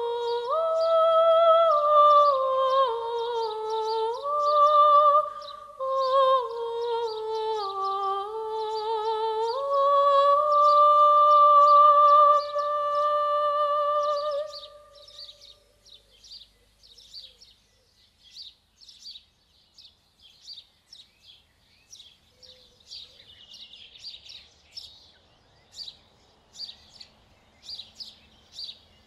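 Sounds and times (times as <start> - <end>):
small songbirds chirping: 0.0 - 29.0.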